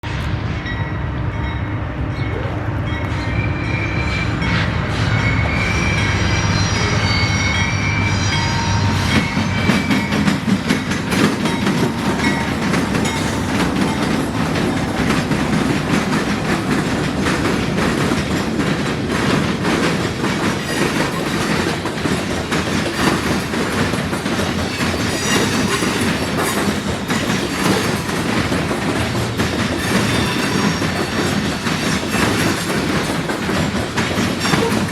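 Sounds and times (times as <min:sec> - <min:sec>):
diesel locomotive engine: 0:00.0 - 0:34.9
train wheels clattering over crossing: 0:02.9 - 0:34.9
high wheel squeal: 0:03.0 - 0:10.3.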